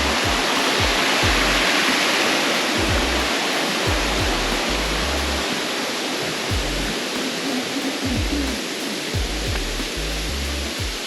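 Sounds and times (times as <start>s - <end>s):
music with deep bass and kick: 0.0s - 2.0s, 2.6s - 5.5s, 6.5s - 7.0s, 8.0s - 11.0s
waterfall rushing: 0.0s - 11.0s.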